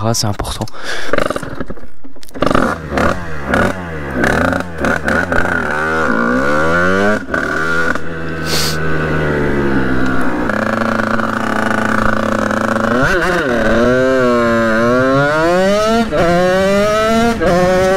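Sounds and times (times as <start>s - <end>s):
motorcycle engine revving: 1.0s - 17.9s
short hiss: 8.4s - 8.8s.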